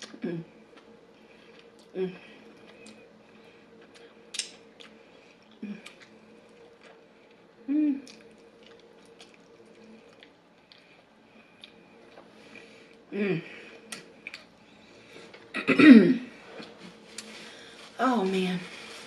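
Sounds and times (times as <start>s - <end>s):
chewing with wet mouth clicks: 3.8s - 7.4s, 8.0s - 11.0s, 11.6s - 12.3s, 13.9s - 14.5s.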